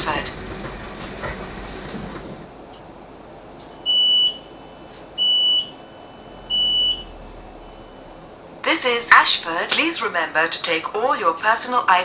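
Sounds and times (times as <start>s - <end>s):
train rumble: 0.0s - 12.0s
high-pitched door warning beeps: 3.8s - 4.6s, 5.2s - 7.1s.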